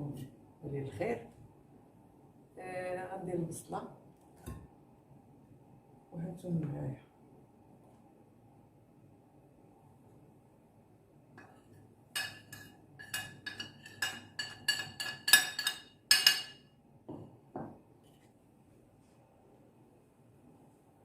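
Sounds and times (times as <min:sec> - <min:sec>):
kitchenware clinking: 0:11.4 - 0:17.7.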